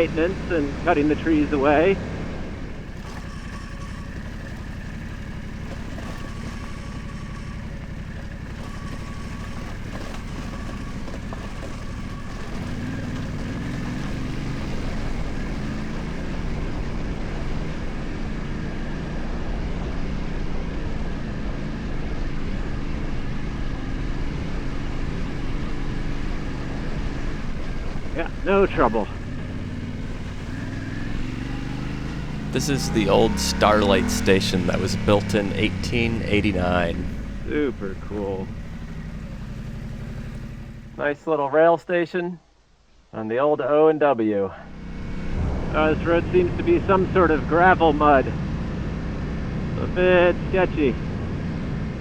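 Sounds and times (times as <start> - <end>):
tyre noise: 0.0 - 19.9
motorcycle engine running: 0.0 - 41.0, 44.6 - 52.0
wind noise: 44.9 - 47.2.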